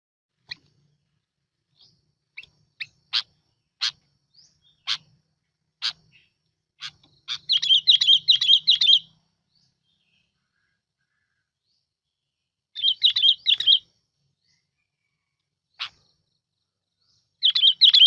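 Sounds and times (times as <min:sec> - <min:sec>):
bulbul calling: 0:01.7 - 0:11.4, 0:12.8 - 0:13.9, 0:15.7 - 0:16.2, 0:17.2 - 0:18.0.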